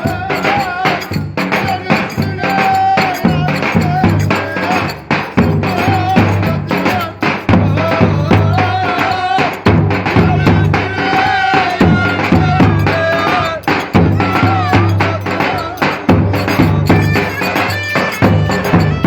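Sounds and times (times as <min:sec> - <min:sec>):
low drum beat: 0:00.0 - 0:19.0
sharp percussion clicks: 0:00.0 - 0:19.0
reedy wind instrument melody: 0:11.1 - 0:19.0.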